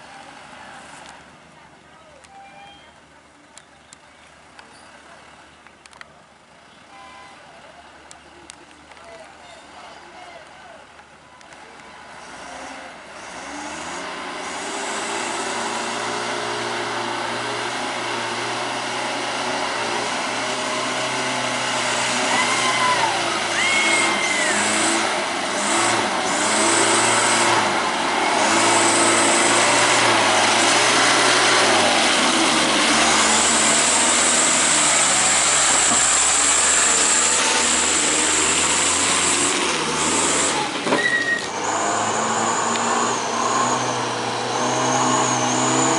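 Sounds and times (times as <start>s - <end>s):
truck engine revving hard: 12.0s - 45.9s.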